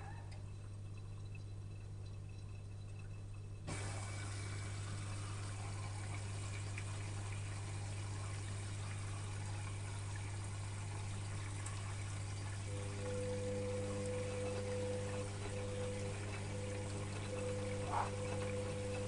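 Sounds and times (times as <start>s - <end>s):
washing machine water rushing: 0.0s - 19.0s
low hum: 12.7s - 19.0s.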